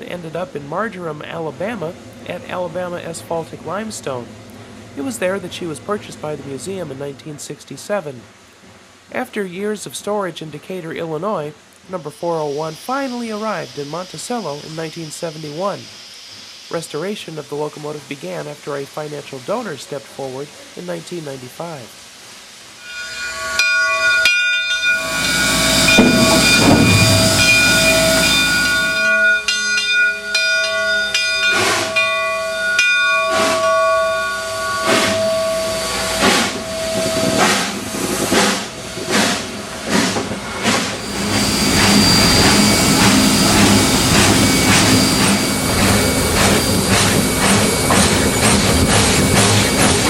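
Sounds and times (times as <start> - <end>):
steam hissing: 12.0 - 50.0
steam locomotive whistle: 22.8 - 50.0
steam exhaust chuffs: 24.0 - 50.0.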